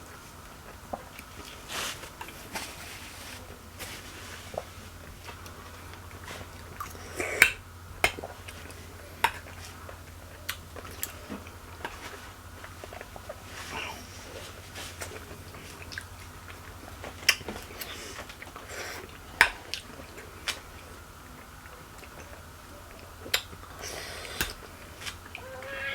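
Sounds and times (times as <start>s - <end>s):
faint steady hum: 0.0s - 25.9s
people chewing fruit: 0.0s - 25.9s
mouth clicks: 22.0s - 24.8s.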